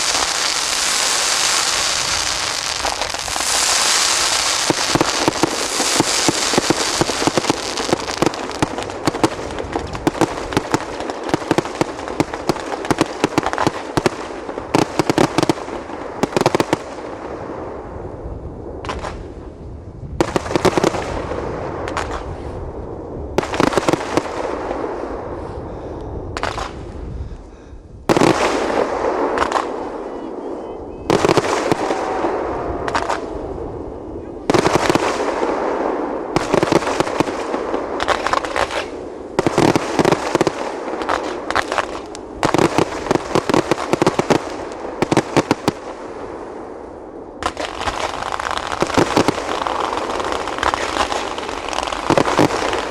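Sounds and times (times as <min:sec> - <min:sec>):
fireworks bangs: 0:00.0 - 0:17.9, 0:18.8 - 0:19.4, 0:20.1 - 0:22.6, 0:23.3 - 0:25.3, 0:26.3 - 0:26.9, 0:28.1 - 0:52.9
fireworks crackling: 0:00.0 - 0:17.9, 0:18.8 - 0:22.6, 0:23.3 - 0:25.3, 0:26.4 - 0:27.0, 0:28.1 - 0:52.9.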